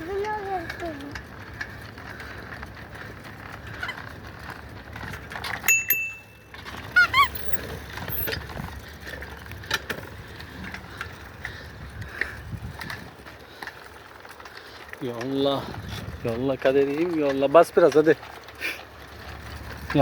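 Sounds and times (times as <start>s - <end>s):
bicycle tyres rumbling: 0.0s - 20.0s
wind: 0.0s - 20.0s
short high ring: 5.7s - 7.2s
squeaky chirps: 6.8s - 8.4s.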